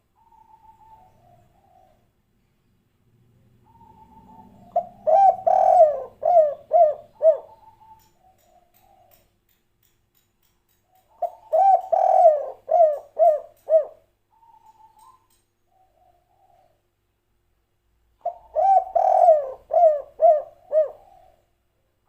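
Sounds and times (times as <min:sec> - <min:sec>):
dove cooing: 0:00.0 - 0:02.1, 0:03.6 - 0:09.2, 0:11.1 - 0:16.8, 0:18.2 - 0:21.5.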